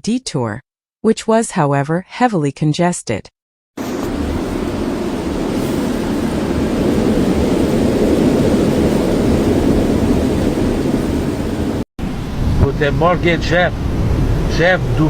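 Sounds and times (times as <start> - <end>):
loud low rushing noise: 3.8 - 15.0.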